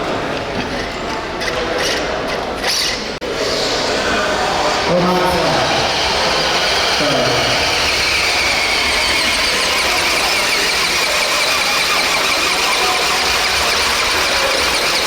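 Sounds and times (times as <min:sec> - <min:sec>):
rc truck high-pitched whine: 0:03.3 - 0:15.0.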